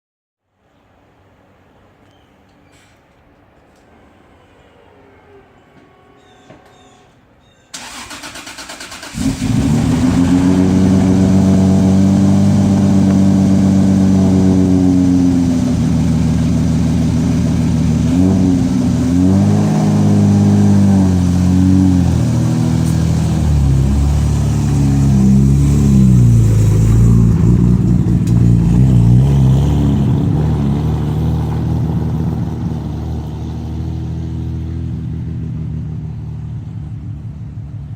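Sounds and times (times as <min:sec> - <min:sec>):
car engine idling and revving: 0:07.8 - 0:37.9.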